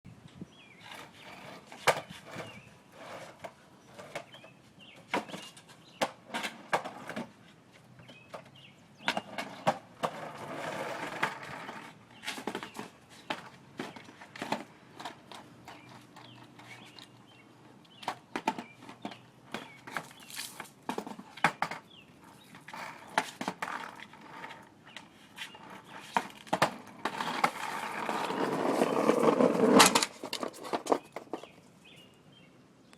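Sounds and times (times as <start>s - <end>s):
skateboard rolling on pavement: 0.5s - 32.5s
skateboard clacks: 3.2s - 7.3s, 8.0s - 31.6s.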